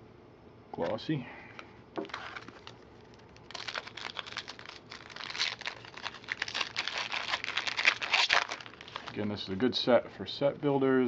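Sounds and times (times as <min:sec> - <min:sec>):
plastic wrapper crinkling and tearing: 0:02.0 - 0:09.3.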